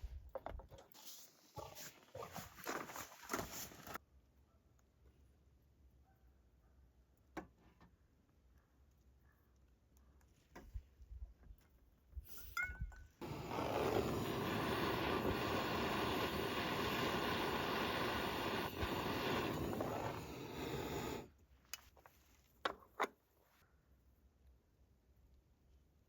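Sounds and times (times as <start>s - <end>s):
butane torch flame hissing: 13.2s - 21.4s
torch clicks: 13.2s - 21.8s.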